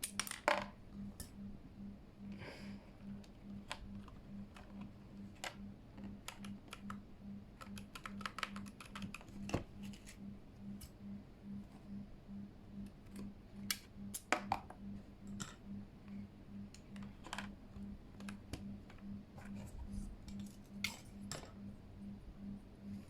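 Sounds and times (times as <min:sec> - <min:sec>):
faint pulsing low hum: 0:00.0 - 0:23.0
plastic keycaps clicking: 0:07.6 - 0:09.5.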